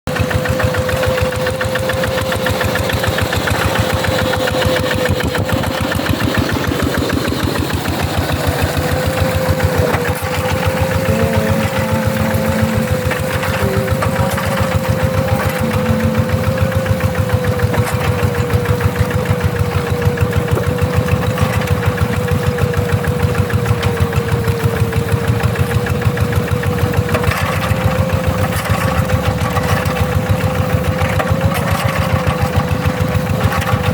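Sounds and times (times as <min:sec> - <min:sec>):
diesel engine chugging: 0:00.1 - 0:33.9
steady whine: 0:08.4 - 0:19.4.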